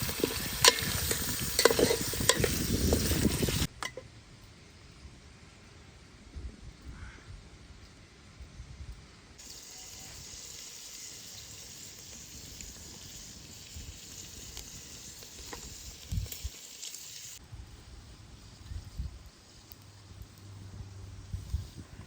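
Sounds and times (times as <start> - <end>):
food sizzling in hot oil: 0.0 - 3.7, 9.4 - 17.4, 18.0 - 22.0.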